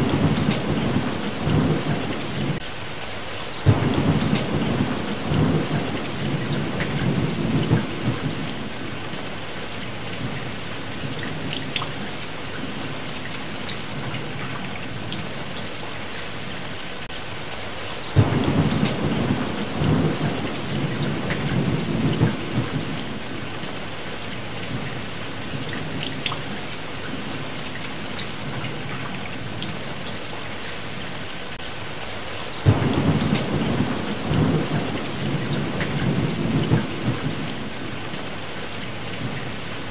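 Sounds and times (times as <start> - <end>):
rolling thunder: 0.0 - 2.6, 3.6 - 9.1, 18.2 - 23.5, 32.6 - 38.0
steady rain: 0.0 - 39.9.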